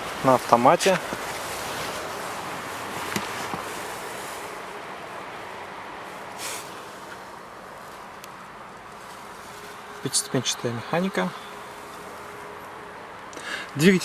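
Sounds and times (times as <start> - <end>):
steady rushing noise: 0.0 - 14.0
short hiss: 6.2 - 7.3.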